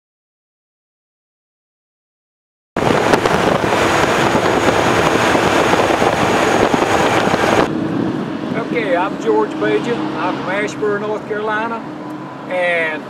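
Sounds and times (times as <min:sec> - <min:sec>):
wind rush on microphone: 0:02.8 - 0:11.0
motorcycle road noise: 0:02.8 - 0:13.0.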